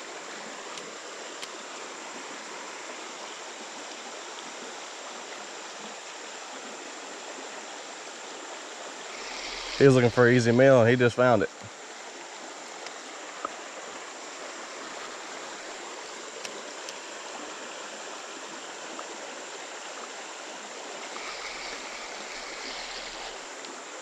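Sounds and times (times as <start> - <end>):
creek water running: 0.0 - 24.0
faint ticks: 0.6 - 1.6, 12.8 - 13.6, 16.1 - 17.0, 21.0 - 23.8.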